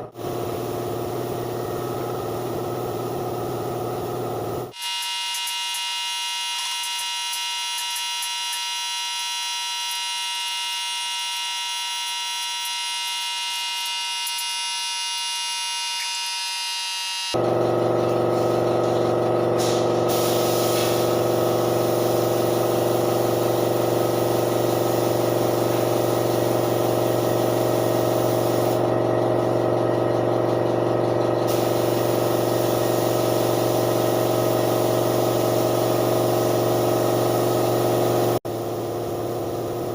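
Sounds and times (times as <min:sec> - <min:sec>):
steady machine hum: 0:00.0 - 0:04.8, 0:17.4 - 0:39.9.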